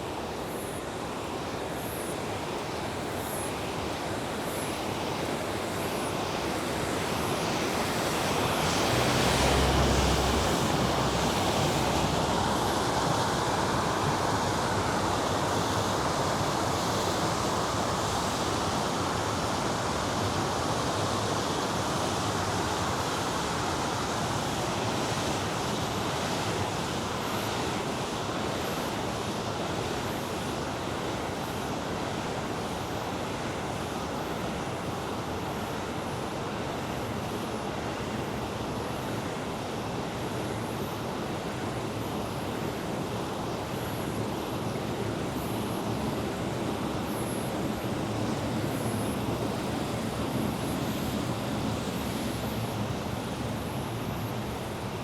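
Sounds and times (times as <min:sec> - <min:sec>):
river water rushing: 0:06.8 - 0:19.2.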